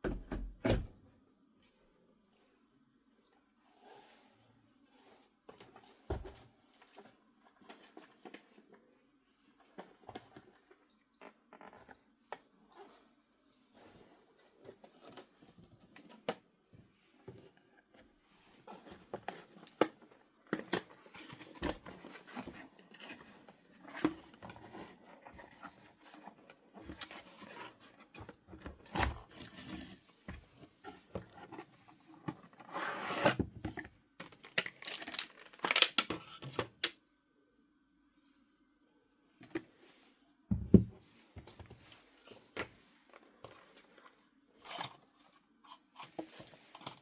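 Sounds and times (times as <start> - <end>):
crinkling: 33.6 - 36.9, 41.4 - 47.0.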